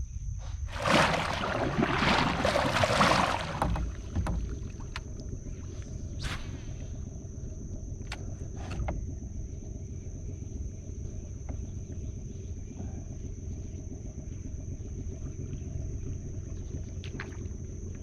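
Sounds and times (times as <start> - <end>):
low rumble: 0.5 - 7.2.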